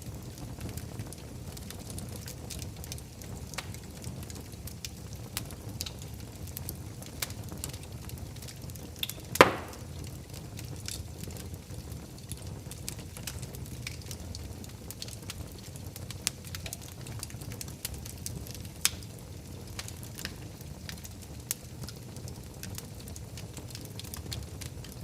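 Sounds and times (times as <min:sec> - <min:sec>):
wood fire crackling: 0:00.0 - 0:25.0
loud pop of fire: 0:09.3 - 0:10.1.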